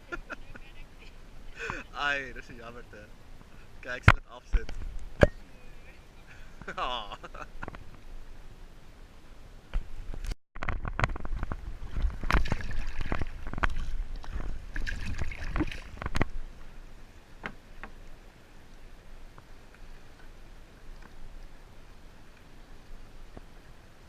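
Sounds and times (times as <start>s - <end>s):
wind rumble on microphone: 6.5s - 17.6s
water sloshing around kayak: 10.9s - 24.0s.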